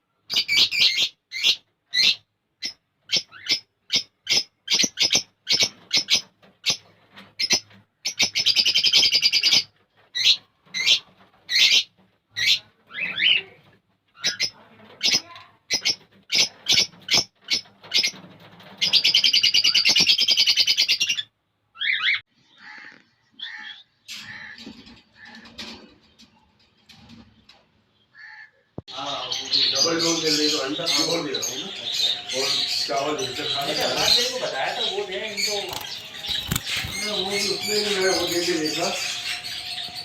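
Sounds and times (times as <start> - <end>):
cage birds chirping: 0.0 - 40.0
rapid rattling bird trill: 0.4 - 12.6, 14.2 - 21.2, 29.0 - 40.0.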